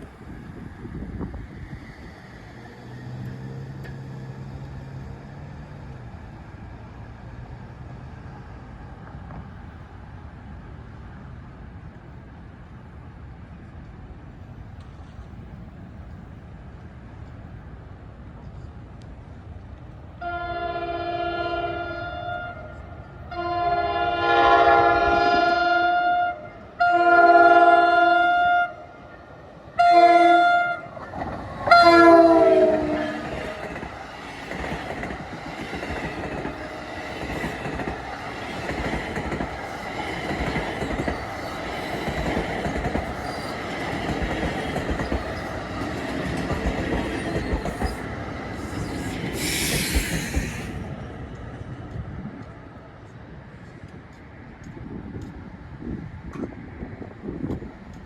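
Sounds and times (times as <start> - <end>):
train rumbling past: 0.0 - 58.0
locomotive air horn: 20.2 - 29.0, 29.8 - 31.0, 31.6 - 33.3
wheels clicking over rail joints: 31.0 - 58.0.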